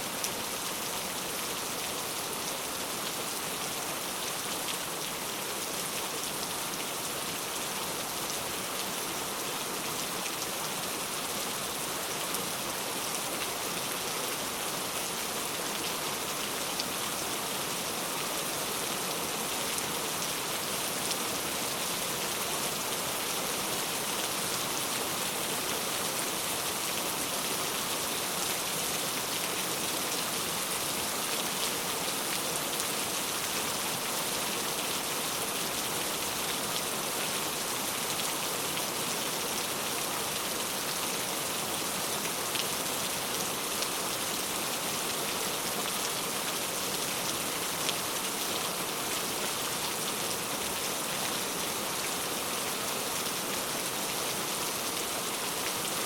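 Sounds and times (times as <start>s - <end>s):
rain pattering on a surface: 0.1s - 56.0s.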